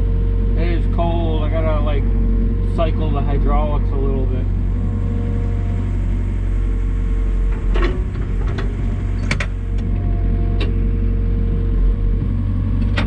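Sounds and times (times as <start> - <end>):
diesel engine running: 0.0 - 13.0
hydraulic whine: 0.8 - 13.0.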